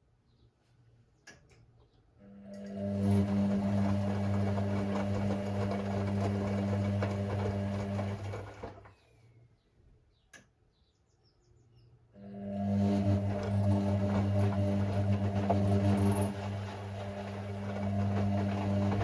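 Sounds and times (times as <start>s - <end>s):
washing machine drum tumbling: 2.9s - 8.9s, 12.7s - 19.0s.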